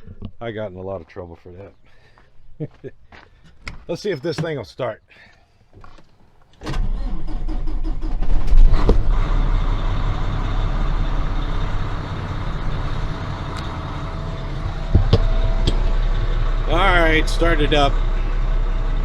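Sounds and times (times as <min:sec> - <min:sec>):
diesel truck engine starting: 0:05.8 - 0:19.0.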